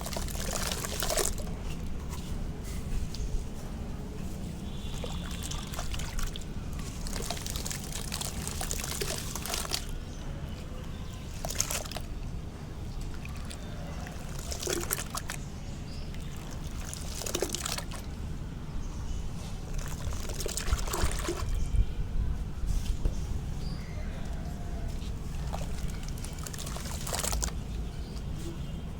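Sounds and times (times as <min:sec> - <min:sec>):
wet crumbling crackle: 0:04.7 - 0:09.9, 0:25.4 - 0:27.6.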